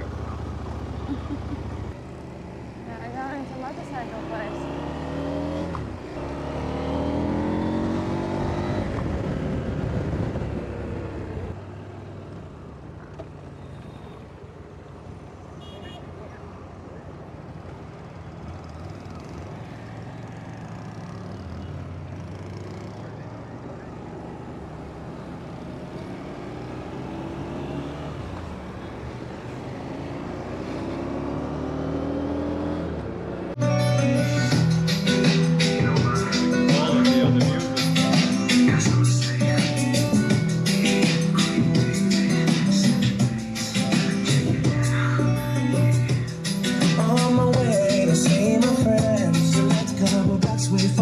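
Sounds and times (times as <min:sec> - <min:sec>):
road and wind noise: 0:00.0 - 0:51.0
motorcycle engine accelerating: 0:03.7 - 0:11.6, 0:29.5 - 0:33.6.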